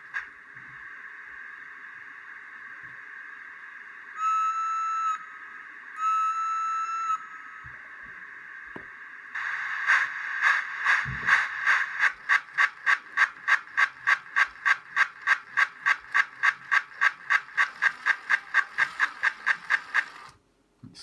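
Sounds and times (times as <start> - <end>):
model steam locomotive exhaust chuffs: 0.0 - 20.4.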